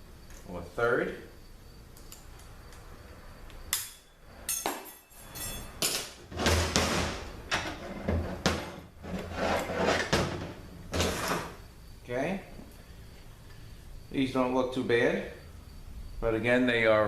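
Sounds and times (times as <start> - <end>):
metal parts knocking and clinking: 3.8 - 6.1.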